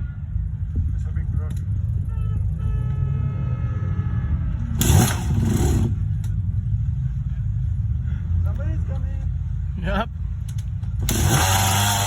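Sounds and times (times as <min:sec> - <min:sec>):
dirt bike engine rumbling: 0:03.6 - 0:12.0.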